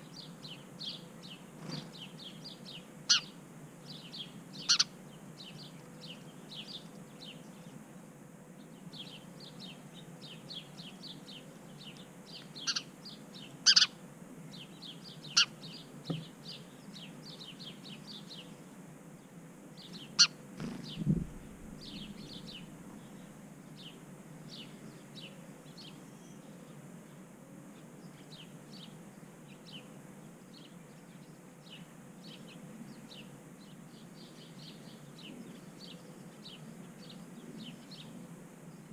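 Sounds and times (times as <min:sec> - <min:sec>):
songbirds chirping: 0:00.0 - 0:38.9
sharp bird calls: 0:03.1 - 0:03.4, 0:04.6 - 0:05.0, 0:12.6 - 0:14.0, 0:15.2 - 0:16.3, 0:20.0 - 0:23.3
low thump: 0:20.6 - 0:22.0.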